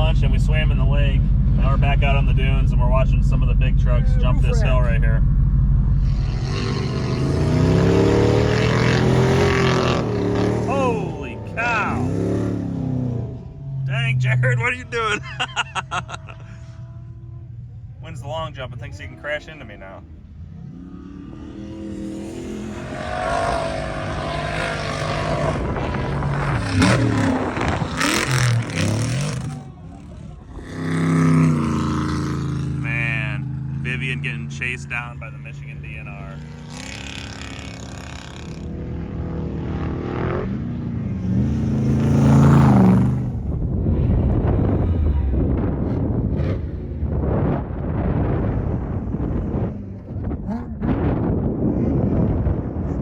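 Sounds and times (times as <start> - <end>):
truck engine revving: 0.0 - 53.0.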